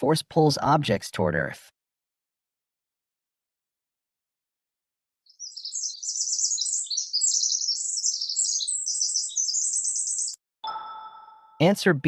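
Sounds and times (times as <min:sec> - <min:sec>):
birds twittering: 0:05.3 - 0:10.4.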